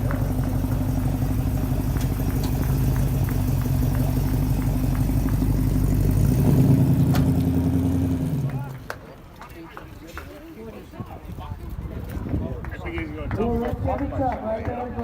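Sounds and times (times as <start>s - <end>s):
car engine running at low revs: 0.0s - 8.9s.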